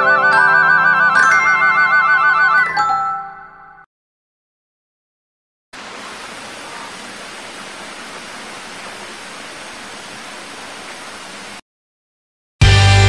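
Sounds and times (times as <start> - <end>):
steady hiss: 5.8 - 11.6
distorted electric guitar chord: 12.6 - 13.0.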